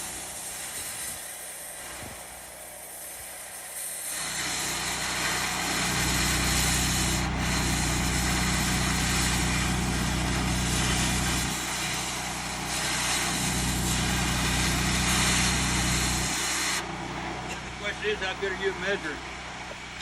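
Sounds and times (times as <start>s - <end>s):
welding arc hissing and crackling: 0.0s - 16.9s
low machine hum: 5.1s - 20.0s.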